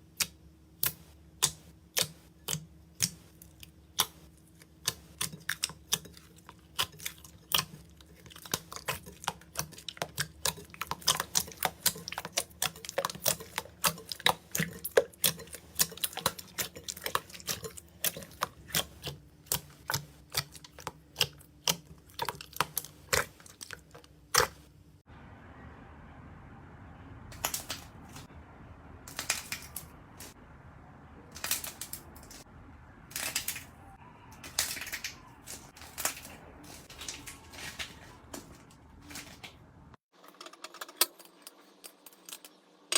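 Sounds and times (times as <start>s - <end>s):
slime crackling and squishing: 0.9s - 24.7s.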